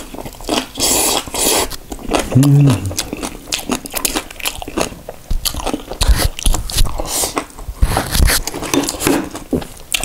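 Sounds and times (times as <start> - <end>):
man chewing with mouth open: 0.0 - 10.0.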